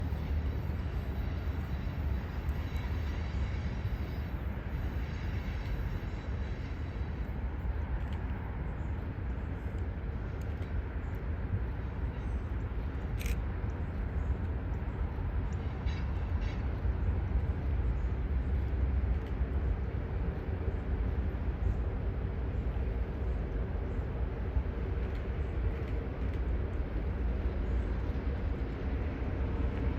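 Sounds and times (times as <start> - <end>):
diesel locomotives rumbling: 0.0 - 29.9.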